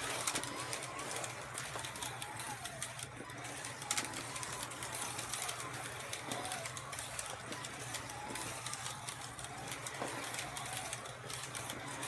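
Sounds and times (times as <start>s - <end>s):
slot car motors whining: 0.0s - 12.0s.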